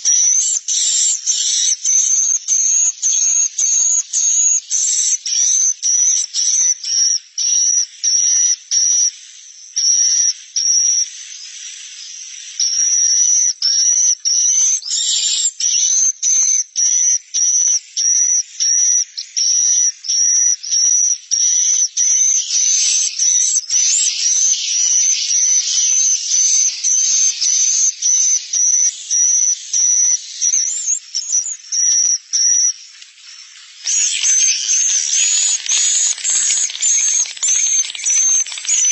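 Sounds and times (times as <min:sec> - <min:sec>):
swiftlet chirps: 0:33.9 - 0:38.9.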